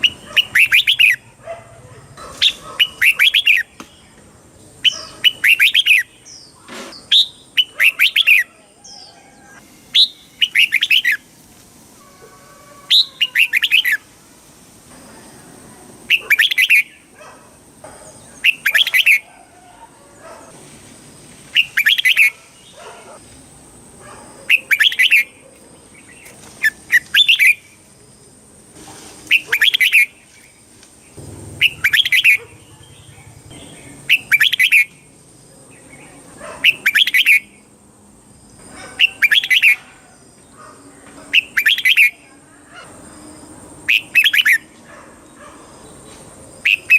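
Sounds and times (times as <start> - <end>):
bird singing bubbly whistled phrase: 31.6 - 32.4, 34.1 - 34.9.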